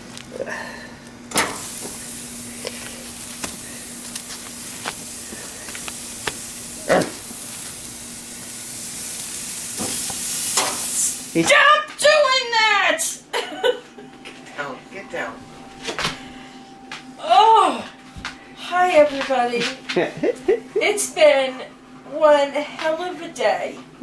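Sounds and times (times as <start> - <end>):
steaks sizzling on a grill: 1.4 - 11.5.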